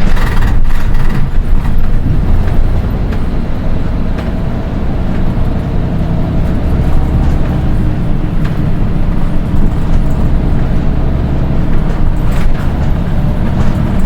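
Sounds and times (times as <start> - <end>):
bus engine rumble: 0.0 - 14.0.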